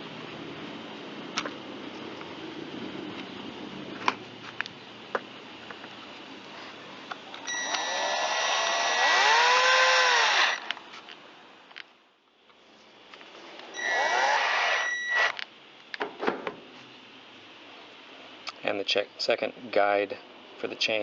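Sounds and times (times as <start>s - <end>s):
cordless drill motor whine: 7.3s - 10.8s, 13.7s - 15.4s.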